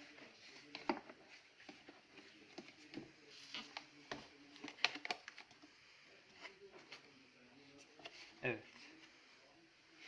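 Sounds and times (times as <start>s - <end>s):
plastic parts clicking and knocking: 3.7s - 5.6s.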